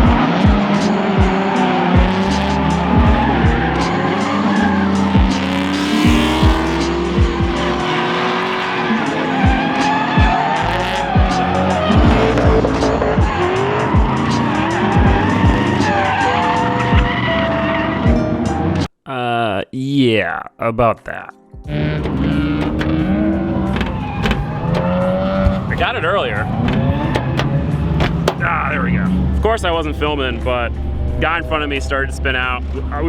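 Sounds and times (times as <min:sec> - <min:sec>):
engines revving: 0:00.1 - 0:16.1
tyres squealing: 0:22.0 - 0:28.6.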